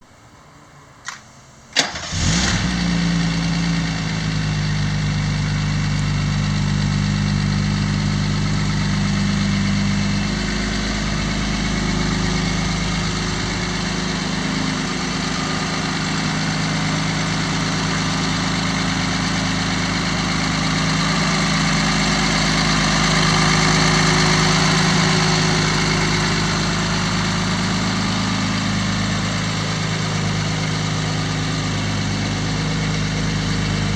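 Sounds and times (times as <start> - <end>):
car engine starting and idling: 0.2 - 33.9.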